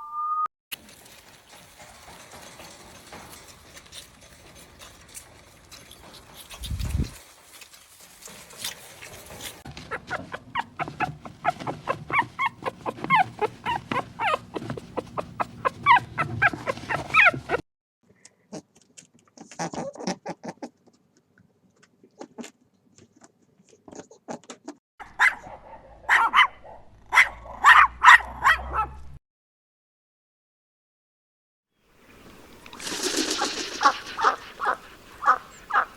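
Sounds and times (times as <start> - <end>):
dog yipping and barking: 9.8 - 17.6, 25.0 - 29.0, 33.8 - 35.9.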